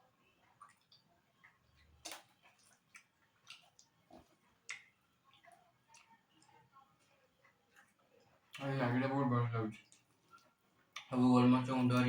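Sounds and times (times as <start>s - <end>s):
chewing lip smacks: 0.4s - 6.7s, 9.7s - 11.1s.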